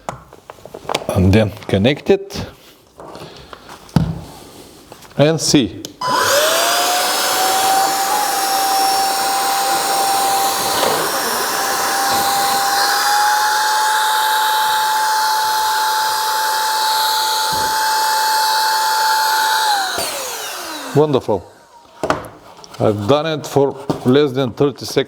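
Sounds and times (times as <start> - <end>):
electric blower whining: 6.0 - 21.8.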